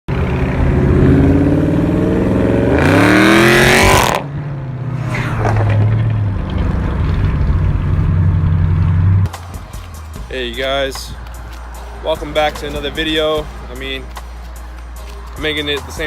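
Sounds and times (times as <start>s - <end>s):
car exhaust idling and revving: 0.1s - 16.0s.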